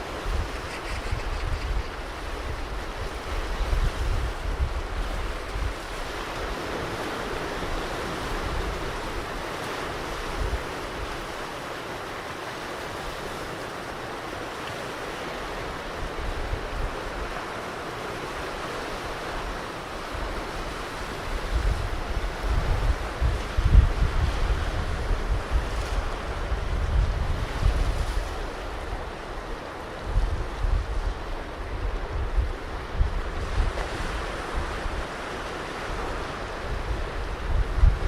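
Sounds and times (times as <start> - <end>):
wind buffeting microphone: 0.0 - 6.2, 20.2 - 38.0
ocean surf breaking: 1.8 - 38.0.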